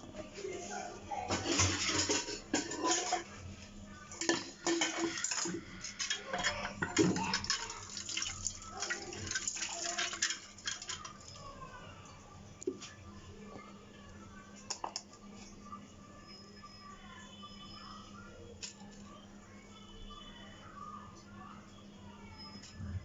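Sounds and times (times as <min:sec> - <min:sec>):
dishes and utensils clinking: 0:01.2 - 0:11.4
water: 0:04.3 - 0:11.4.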